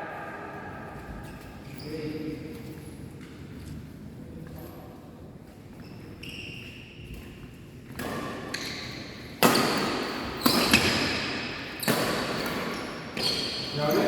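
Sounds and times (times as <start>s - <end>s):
shoe squeaks on court floor: 5.7s - 7.4s, 10.4s - 11.0s, 11.8s - 14.0s
racket hitting shuttlecock: 7.9s - 8.7s, 9.4s - 12.7s.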